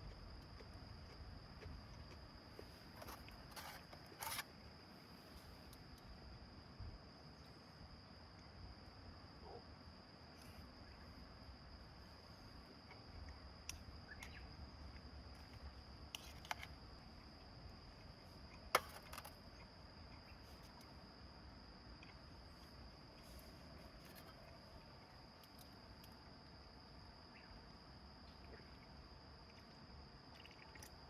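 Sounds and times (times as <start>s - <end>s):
high-pitched insect trill: 0.0s - 31.0s.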